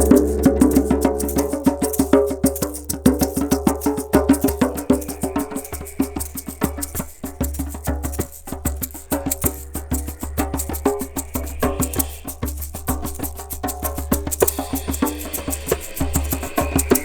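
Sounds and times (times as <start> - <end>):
low steady drone: 0.0 - 2.4, 9.1 - 13.2
sustained ringing tones: 0.0 - 2.6
tapping on wooden percussion: 0.0 - 17.0.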